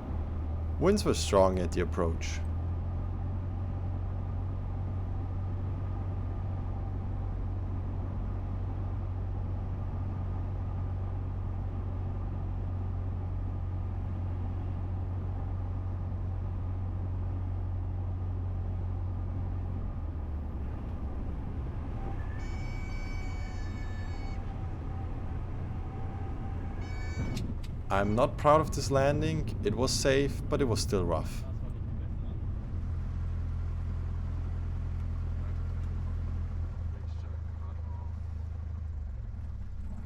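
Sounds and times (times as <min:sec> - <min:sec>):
propeller plane engine droning: 0:00.0 - 0:40.0.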